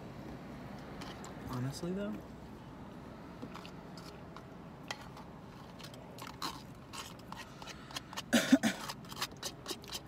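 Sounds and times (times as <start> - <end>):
food crunching while chewing: 5.6 - 10.0.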